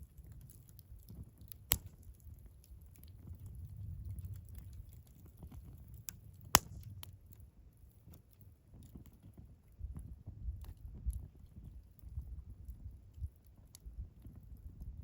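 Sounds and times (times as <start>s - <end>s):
fire crackles: 0.0s - 15.0s
wood fire rumbling: 0.0s - 15.0s
loud pop from fire: 1.4s - 2.3s, 6.4s - 7.2s.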